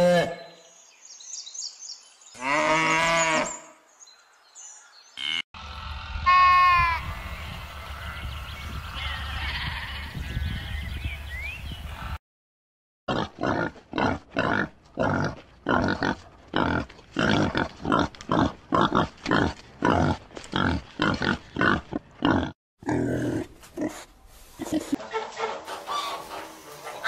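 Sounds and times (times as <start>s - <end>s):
pig grunting: 13.1s - 24.0s.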